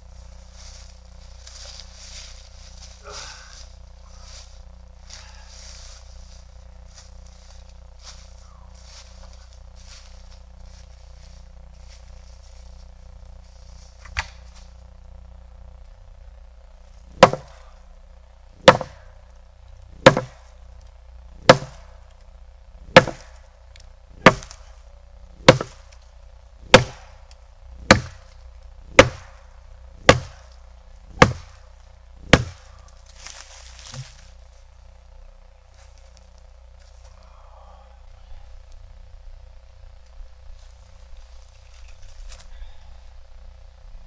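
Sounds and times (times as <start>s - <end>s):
axe chopping wood: 14.0s - 14.4s, 17.1s - 17.6s, 18.6s - 19.1s, 20.0s - 20.5s, 21.4s - 21.9s, 22.9s - 23.4s, 24.2s - 24.6s, 25.4s - 25.9s, 26.6s - 27.2s, 27.8s - 28.3s, 28.9s - 29.4s, 30.0s - 30.5s, 31.1s - 31.6s, 32.2s - 32.7s.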